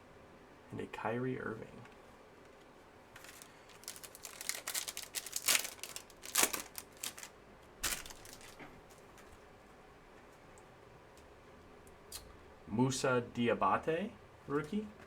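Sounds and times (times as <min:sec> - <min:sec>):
cards and foil wrapper crinkling: 0:03.2 - 0:08.7.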